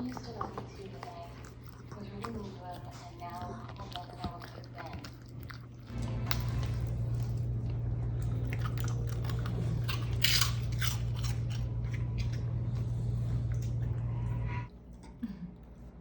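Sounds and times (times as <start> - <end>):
dog chewing crunchy snack: 0.0 - 14.0
low hum: 5.8 - 16.0.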